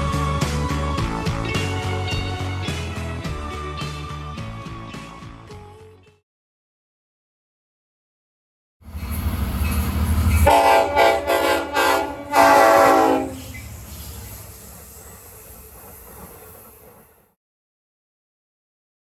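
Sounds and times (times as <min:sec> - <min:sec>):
locomotive rumble: 0:08.9 - 0:17.3
multi-tone train horn blasts: 0:10.4 - 0:13.8.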